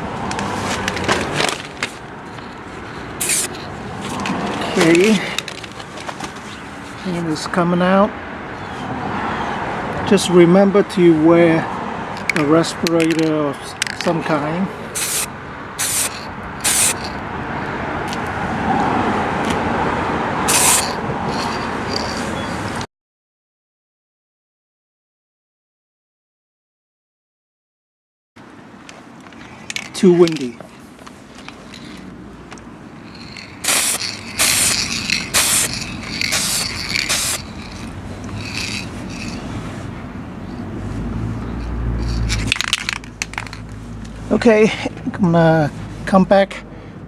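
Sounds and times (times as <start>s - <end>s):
spray paint can hissing: 3.2s - 3.6s, 14.9s - 17.2s, 20.5s - 22.2s, 33.1s - 39.4s.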